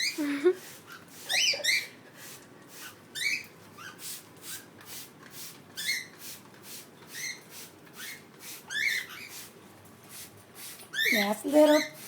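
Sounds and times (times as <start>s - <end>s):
cockatiels chirping: 3.2s - 4.2s, 8.0s - 9.4s, 10.9s - 12.0s.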